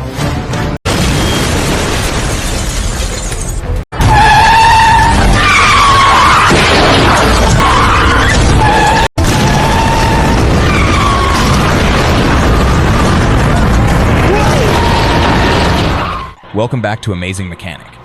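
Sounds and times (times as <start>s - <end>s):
background music: 0.0s - 0.8s.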